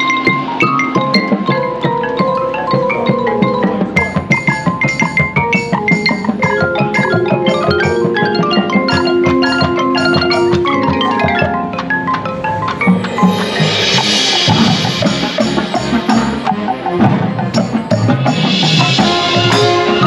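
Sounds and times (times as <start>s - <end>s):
marching band music: 0.0s - 20.0s
marimba and xylophone runs: 0.0s - 20.0s
cymbal wash: 12.8s - 16.6s.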